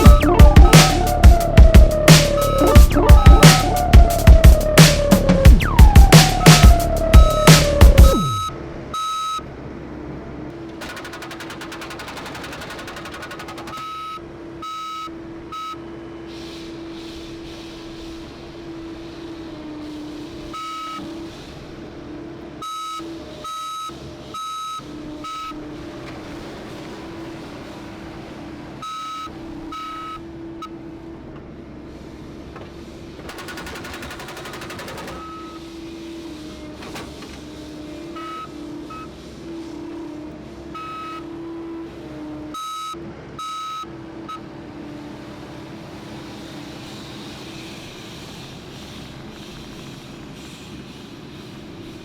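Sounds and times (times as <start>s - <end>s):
backup alarm beeping: 0.0s - 9.4s, 10.8s - 15.8s, 33.4s - 35.6s, 38.2s - 39.1s, 40.8s - 41.2s, 42.6s - 44.4s
construction machine engine running: 0.0s - 52.0s
rapid rattling strokes: 10.8s - 13.9s, 33.3s - 35.3s.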